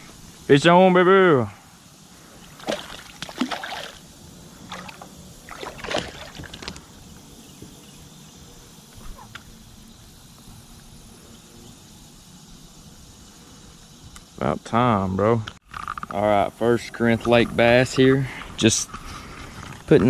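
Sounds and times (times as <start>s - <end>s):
water splashing around kayak: 2.5s - 4.0s, 4.6s - 6.7s.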